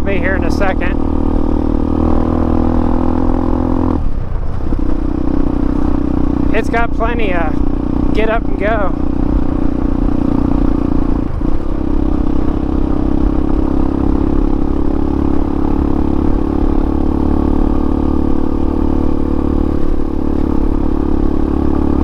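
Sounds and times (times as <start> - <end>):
rider talking: 0.0 - 1.1, 6.4 - 9.0
motorcycle engine running: 0.0 - 22.0.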